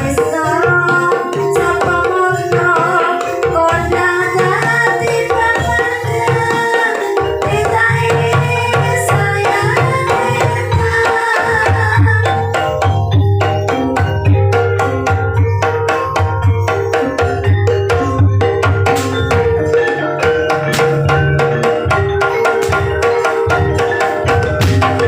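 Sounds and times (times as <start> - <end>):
hand drums beating: 0.0 - 25.0
struck tuned metal notes: 13.6 - 25.0.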